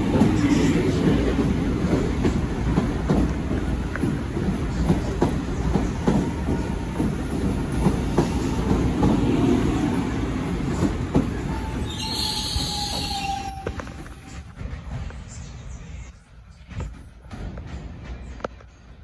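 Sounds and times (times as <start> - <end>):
train rumbling past: 0.0 - 19.0
wheel squeal: 11.7 - 14.4.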